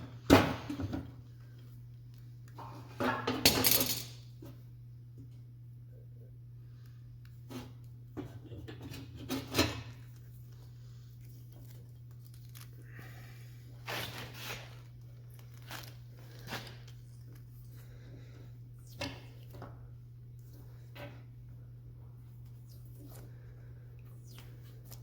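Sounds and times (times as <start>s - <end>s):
low hum: 9.9s - 25.0s.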